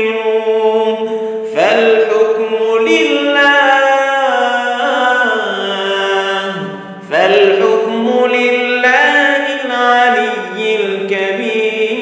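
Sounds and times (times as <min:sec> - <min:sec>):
man chanting melodically: 0:00.0 - 0:12.0.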